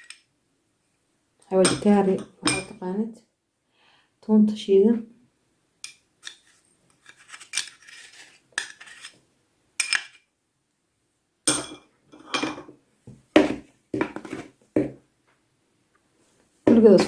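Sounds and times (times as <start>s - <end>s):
metal spoon scraping mixing bowl: 6.2s - 9.2s.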